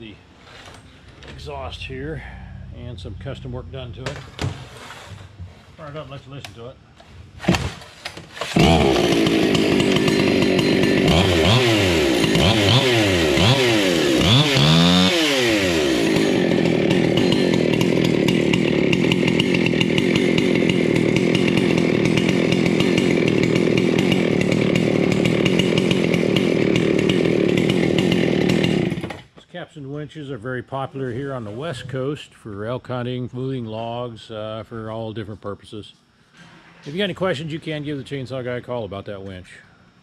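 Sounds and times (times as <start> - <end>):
chainsaw starting and revving: 8.3 - 29.3.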